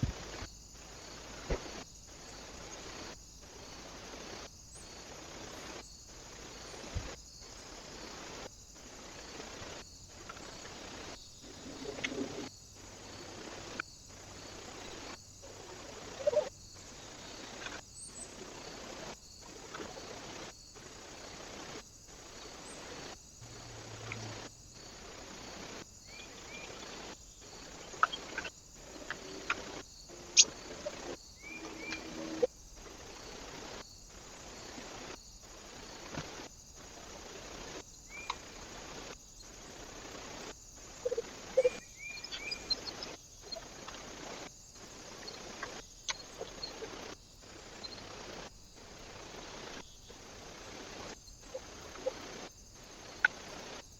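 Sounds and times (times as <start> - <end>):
birds chirping: 26.0 - 32.5, 41.0 - 43.8.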